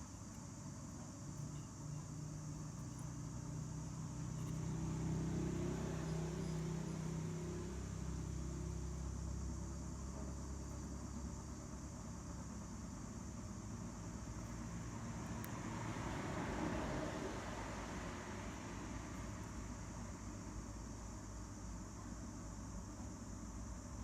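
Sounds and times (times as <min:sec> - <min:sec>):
low engine hum: 0:02.2 - 0:12.2, 0:13.6 - 0:20.4.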